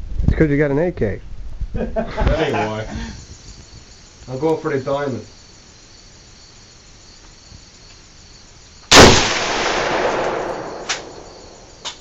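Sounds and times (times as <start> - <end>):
rifle shot with echo: 8.9 - 12.0.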